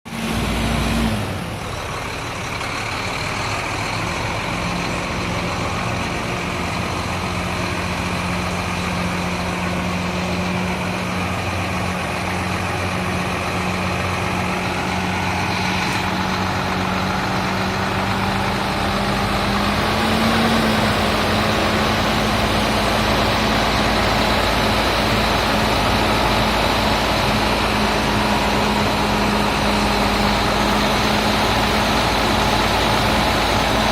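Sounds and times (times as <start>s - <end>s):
truck engine idling: 0.1s - 33.9s.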